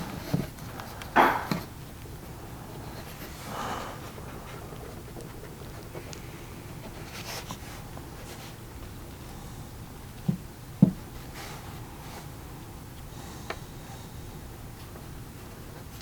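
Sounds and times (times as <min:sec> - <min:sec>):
dull knocks: 0:01.1 - 0:01.7.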